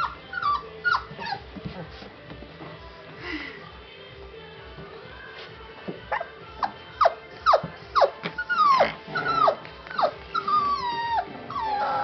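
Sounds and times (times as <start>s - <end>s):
puppy yelping and whining: 0.0s - 1.5s, 6.0s - 12.0s
faint music: 0.0s - 12.0s.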